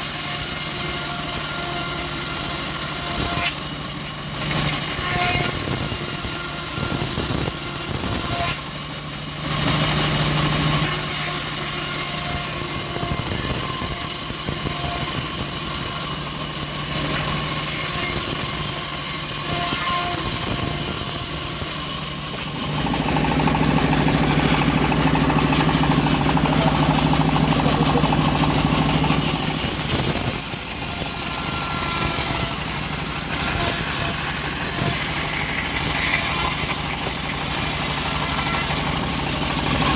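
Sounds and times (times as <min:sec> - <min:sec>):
bandsaw whine sawing wood: 0:00.0 - 0:39.9
engine hum: 0:20.2 - 0:39.9.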